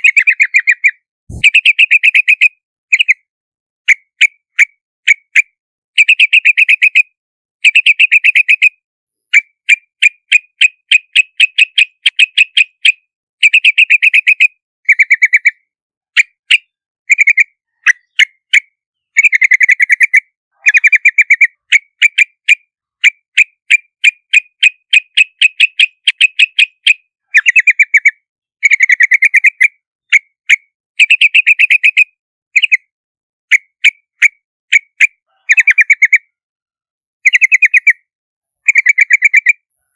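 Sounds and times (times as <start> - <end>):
bird chip notes and chattering: 0.0 - 2.3.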